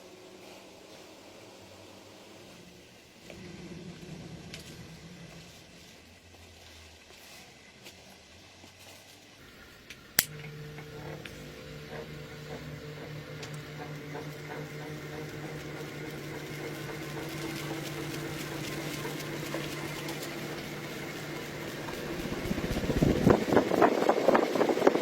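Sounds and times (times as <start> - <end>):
small motor humming: 9.4 - 25.0.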